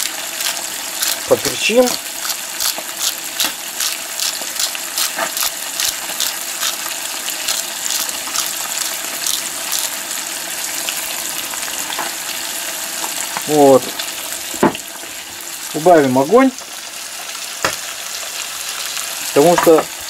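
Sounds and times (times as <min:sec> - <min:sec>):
oil popping and crackling: 0:00.0 - 0:15.5
food sizzling in a skillet: 0:00.0 - 0:20.0.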